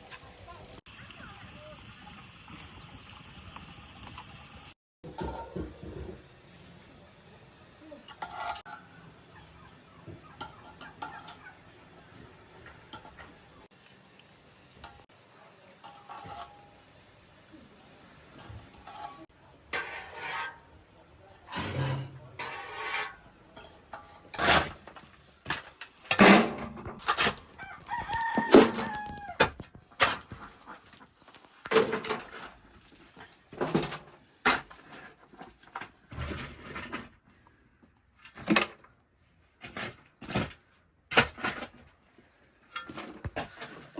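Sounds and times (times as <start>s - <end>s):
poultry calling and crowing: 8.7s - 12.9s, 27.0s - 31.6s.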